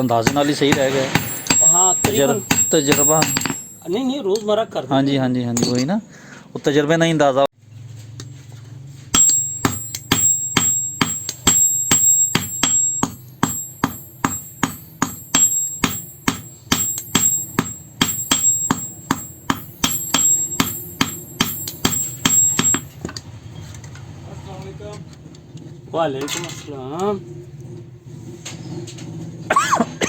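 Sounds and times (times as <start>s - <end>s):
hammer ringing on anvil: 0.0s - 4.2s, 5.6s - 5.8s, 9.2s - 23.0s.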